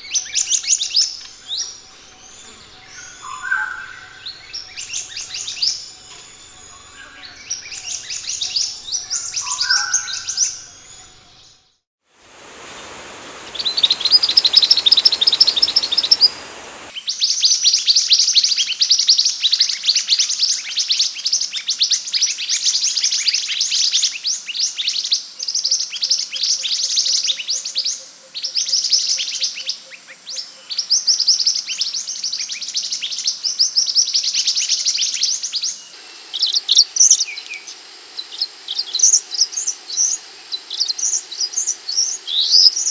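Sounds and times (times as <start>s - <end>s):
recording hiss: 12.0s - 27.8s, 28.5s - 42.9s
bird rapid high chirps: 12.3s - 16.9s.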